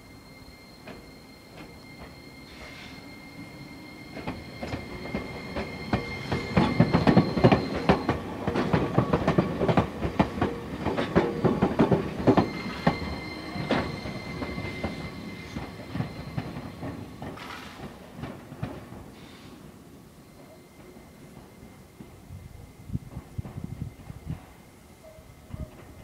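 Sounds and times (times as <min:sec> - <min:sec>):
high-pitched squeal: 0:00.0 - 0:08.7, 0:11.3 - 0:17.9.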